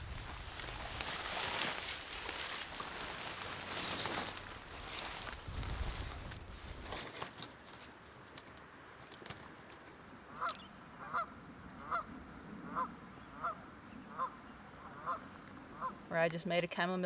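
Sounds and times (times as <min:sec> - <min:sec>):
faint clicks and rustling: 0:00.0 - 0:10.6.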